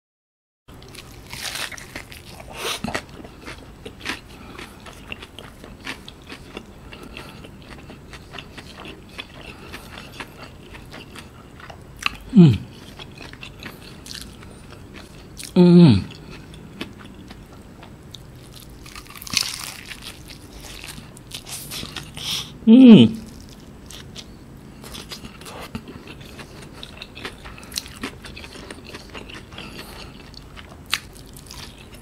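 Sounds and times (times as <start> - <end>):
crunchy bites into fried chicken: 0.8 - 6.6, 18.3 - 22.3
wet chewing: 0.8 - 22.5, 23.2 - 32.0
short falling vocal sound: 12.3 - 12.6, 15.6 - 16.1, 22.6 - 23.2.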